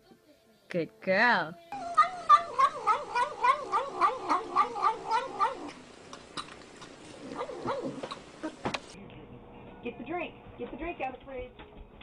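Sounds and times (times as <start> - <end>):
cat yowling: 1.8 - 5.8.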